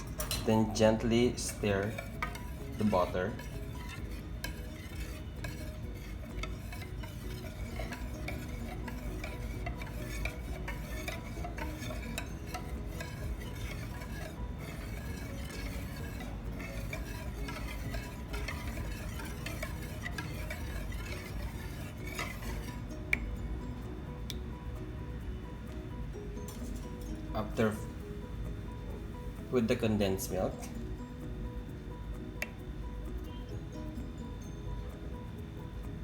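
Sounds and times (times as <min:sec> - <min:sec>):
utensil scraping in bowl: 0:00.0 - 0:23.3.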